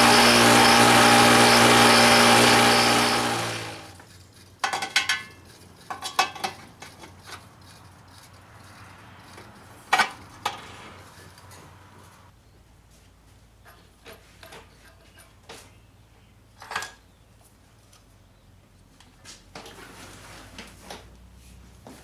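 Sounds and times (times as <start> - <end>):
power tool spinning down: 0.0 - 4.0.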